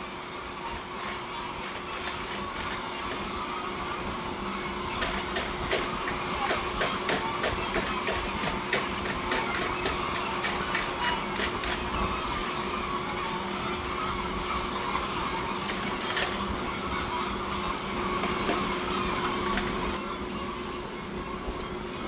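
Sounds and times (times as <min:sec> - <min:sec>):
machinery hum: 0:00.0 - 0:22.0
rapid clicking and rattling: 0:00.6 - 0:03.2, 0:05.0 - 0:12.5, 0:13.1 - 0:16.5.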